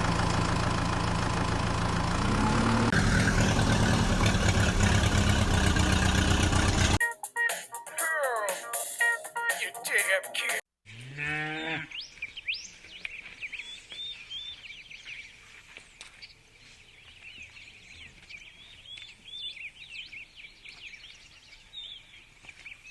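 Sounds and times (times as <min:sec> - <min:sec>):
brief pitched call: 0:07.0 - 0:10.6
birds chirping rapidly: 0:11.6 - 0:22.9.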